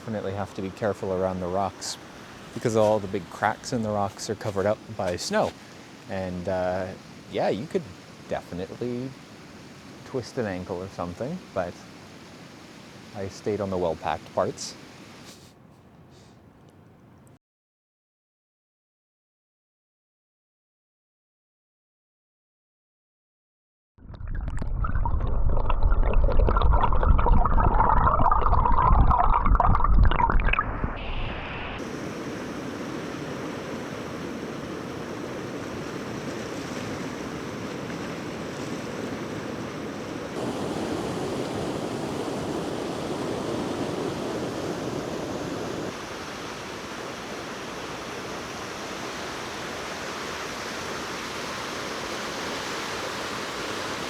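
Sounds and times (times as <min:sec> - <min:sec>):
water rushing over rocks: 0:00.0 - 0:09.2, 0:31.8 - 0:54.0.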